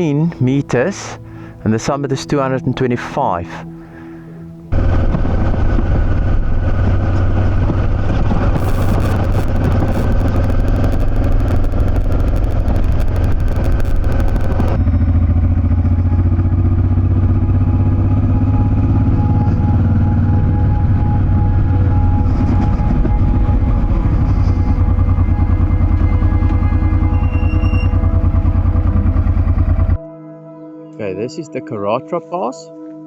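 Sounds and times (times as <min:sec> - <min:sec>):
wind noise: 0:04.7 - 0:15.2
motorcycle engine running: 0:04.7 - 0:30.0
rapid crackle of fine clicks: 0:06.9 - 0:14.8.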